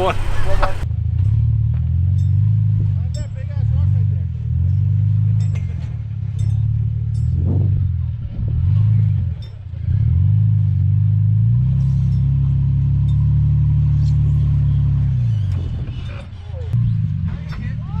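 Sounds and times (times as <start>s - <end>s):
vehicle engine revving: 0.0s - 0.8s.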